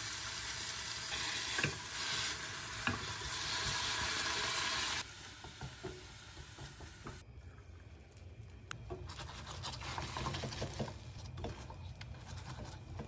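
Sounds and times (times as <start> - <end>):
sauce sizzling in frying pan: 0.0 - 7.2.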